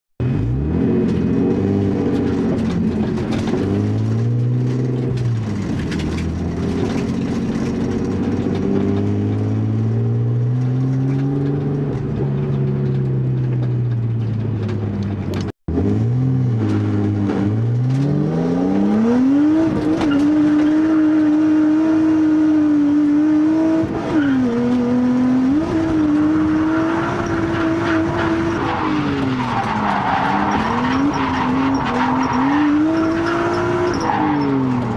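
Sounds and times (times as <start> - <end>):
turbocharged engine revving: 15.7 - 34.9
tyres squealing: 26.1 - 34.9.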